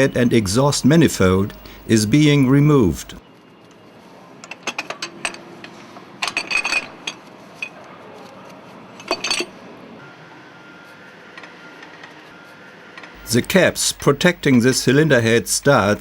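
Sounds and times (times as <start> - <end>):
low steady hum: 0.0 - 3.2, 13.2 - 16.0.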